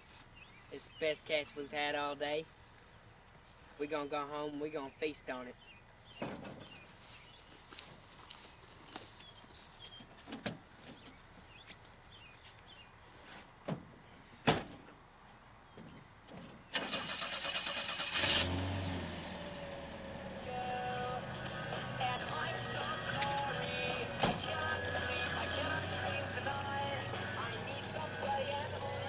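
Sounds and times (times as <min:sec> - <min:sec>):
engine cranking and running: 0:16.7 - 0:28.2.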